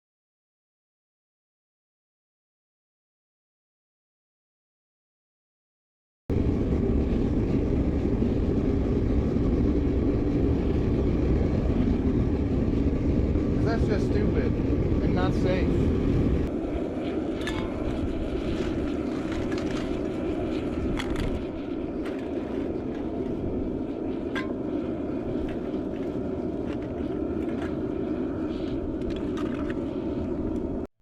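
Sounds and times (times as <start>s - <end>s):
propane burner rushing: 6.3s - 30.9s.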